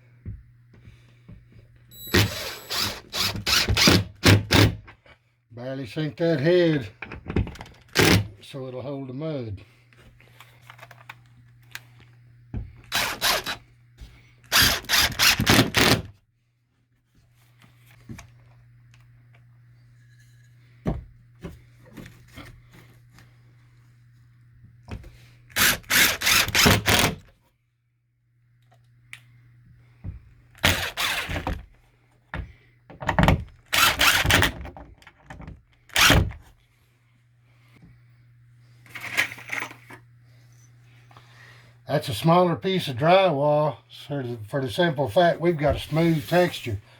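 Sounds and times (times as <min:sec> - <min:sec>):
low steady hum: 0:00.0 - 0:46.9
cordless drill driving screws: 0:02.0 - 0:04.8, 0:07.8 - 0:08.3, 0:12.8 - 0:13.6, 0:14.5 - 0:16.1, 0:25.6 - 0:27.2, 0:30.6 - 0:31.6, 0:33.7 - 0:34.6, 0:35.9 - 0:36.4.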